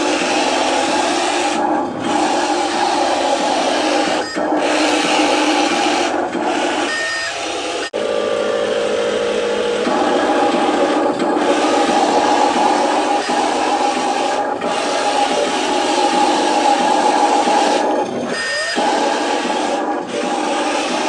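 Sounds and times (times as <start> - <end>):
toy truck motor whining: 2.4 - 7.9, 10.2 - 21.0.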